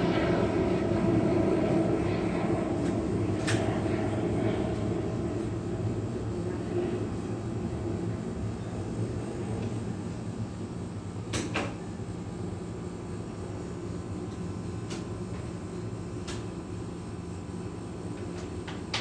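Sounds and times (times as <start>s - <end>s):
engine and airflow hum: 0.0s - 19.0s.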